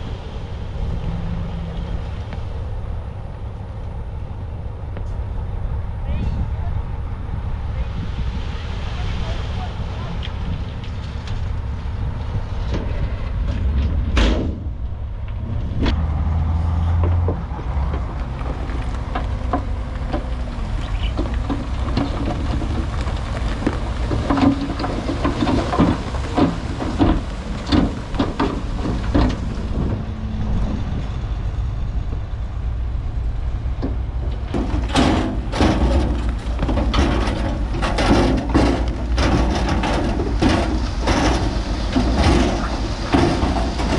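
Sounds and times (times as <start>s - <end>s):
diesel machinery rumbling: 0.0s - 43.9s
knocks and clatter: 12.6s - 16.0s, 17.0s - 31.2s, 33.8s - 43.9s.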